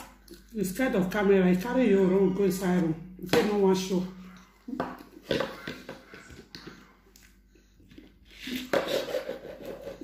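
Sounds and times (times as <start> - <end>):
person chewing: 0.0 - 0.6, 4.2 - 10.0.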